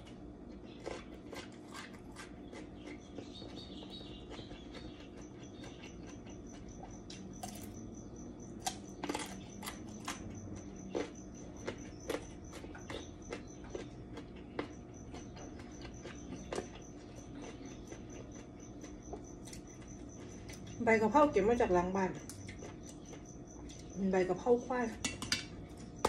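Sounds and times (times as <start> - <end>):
carrot crunching: 0.0 - 7.9, 8.5 - 20.7.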